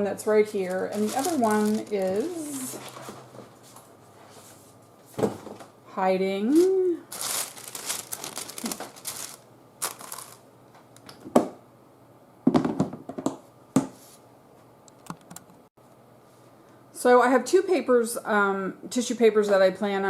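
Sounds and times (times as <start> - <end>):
tissue paper rustling: 0.5 - 3.2, 6.5 - 10.4.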